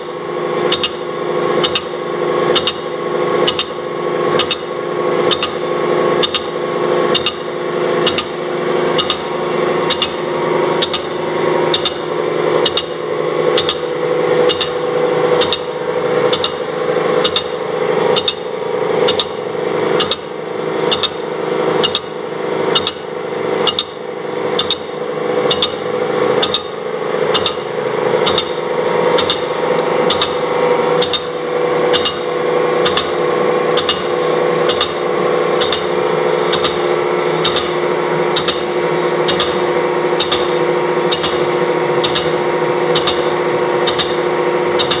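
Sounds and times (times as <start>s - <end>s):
machine humming: 0.0s - 45.0s
sharp ringing ticks: 3.5s - 3.8s, 5.3s - 5.6s, 39.3s - 39.6s, 40.2s - 44.2s.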